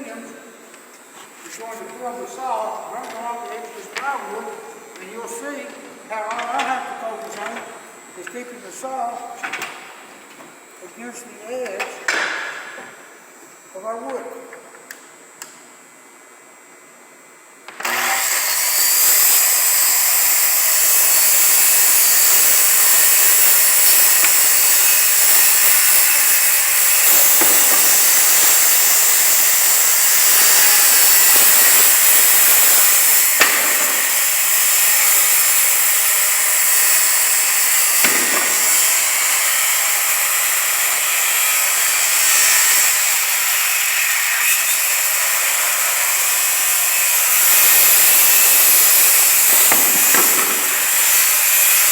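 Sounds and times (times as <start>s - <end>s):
circular saw cutting plywood: 17.8s - 51.9s.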